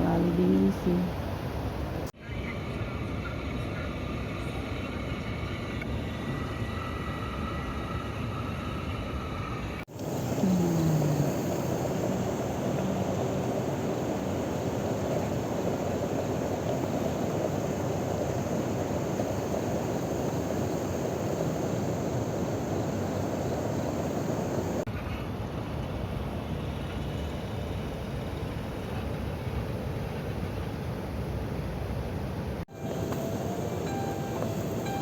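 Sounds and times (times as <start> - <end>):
river and small waterfall rushing: 9.9 - 24.9, 32.7 - 35.0.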